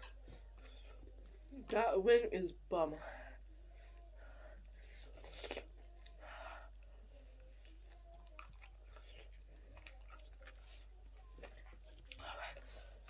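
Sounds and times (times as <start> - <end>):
chewing and wet mouth clicks: 5.1 - 6.2, 6.8 - 12.8.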